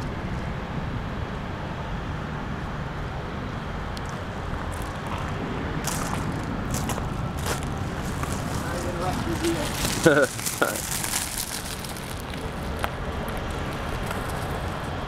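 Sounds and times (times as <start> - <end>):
storm wind rumbling on microphone: 3.5 - 15.0.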